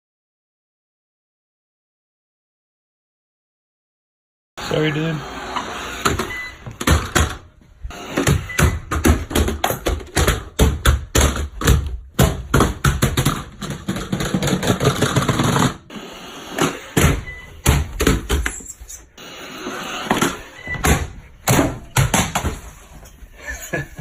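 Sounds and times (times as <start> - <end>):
plastic clattering down stairs: 6.2 - 7.6, 8.3 - 15.9, 17.0 - 18.6, 20.1 - 22.8.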